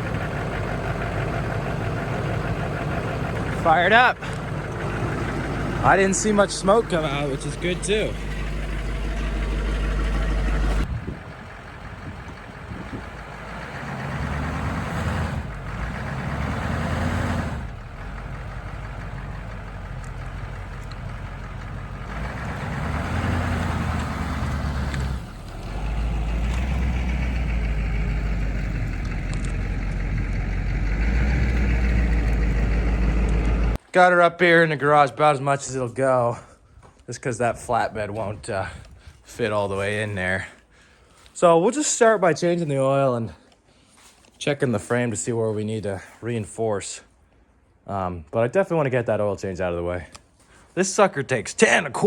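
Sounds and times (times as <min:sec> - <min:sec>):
diesel engine running: 0:00.0 - 0:33.8.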